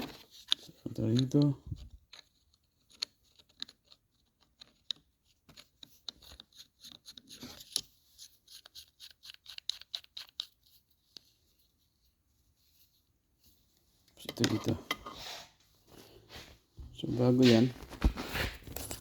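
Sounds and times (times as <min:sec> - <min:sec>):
short scrape: 0:15.0 - 0:15.6.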